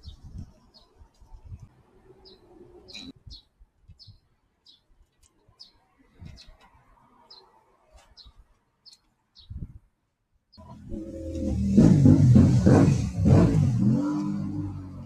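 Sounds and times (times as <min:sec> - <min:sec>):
small bird chirping: 0:00.0 - 0:06.6, 0:07.2 - 0:09.8.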